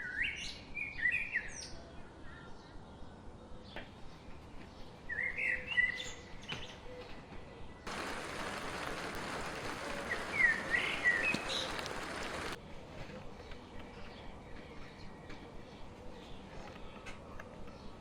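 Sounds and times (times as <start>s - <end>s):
rain hissing: 7.9s - 12.6s
songbird twittering: 7.9s - 12.6s.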